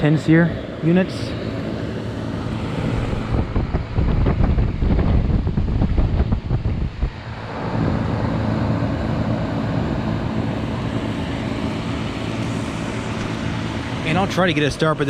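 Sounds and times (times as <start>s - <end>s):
air conditioner humming: 0.0s - 15.0s
condenser fan rushing: 0.0s - 15.0s
wind buffeting microphone: 2.0s - 10.2s.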